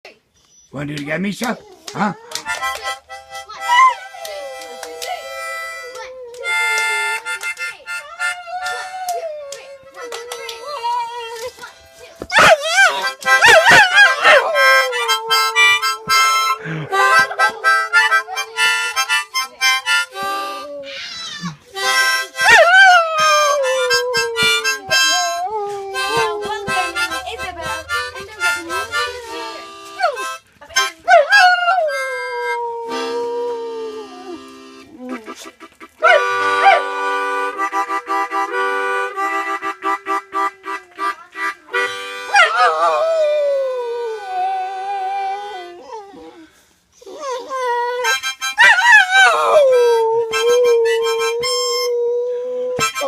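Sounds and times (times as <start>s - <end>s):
blues harmonica: 1.8s - 51.9s, 52.8s - 53.0s
dog howling: 12.3s - 18.7s, 22.4s - 27.2s, 31.0s - 35.3s, 36.0s - 41.1s, 42.3s - 46.4s, 47.1s - 53.0s.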